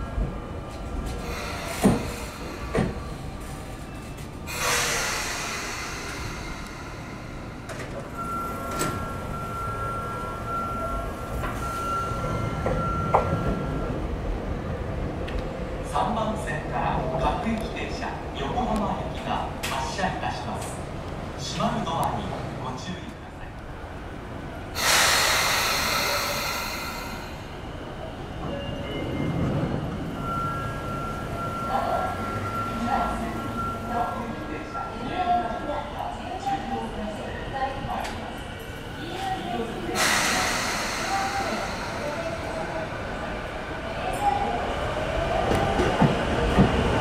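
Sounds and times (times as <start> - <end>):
train rumbling: 0.0 - 47.0
train compressed air hiss: 1.2 - 2.9, 4.5 - 7.7, 24.8 - 27.6, 39.9 - 42.9.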